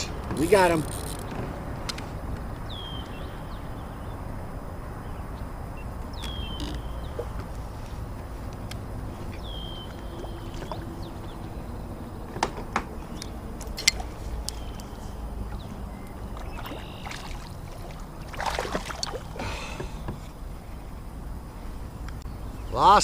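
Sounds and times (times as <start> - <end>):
water sloshing: 6.3 - 20.8
fish splashing: 9.1 - 12.1, 13.3 - 20.1.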